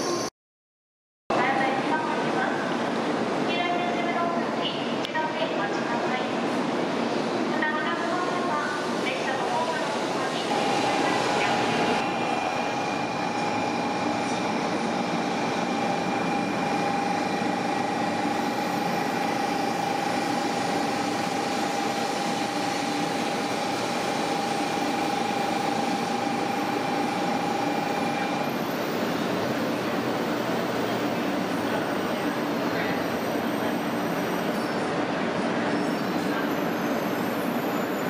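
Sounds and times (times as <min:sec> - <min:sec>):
train motor whine: 0:10.5 - 0:31.4.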